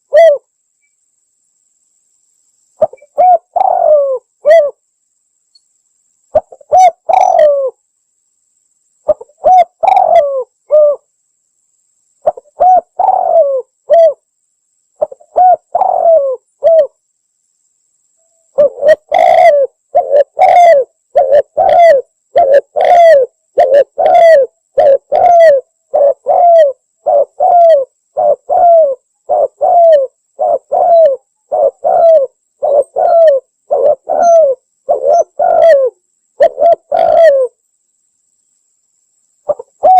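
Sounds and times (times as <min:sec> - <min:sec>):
dove cooing: 0:00.0 - 0:00.5, 0:02.8 - 0:04.8, 0:06.3 - 0:07.8, 0:09.1 - 0:11.1, 0:12.2 - 0:14.2, 0:15.0 - 0:16.9, 0:18.6 - 0:37.6, 0:39.5 - 0:39.9.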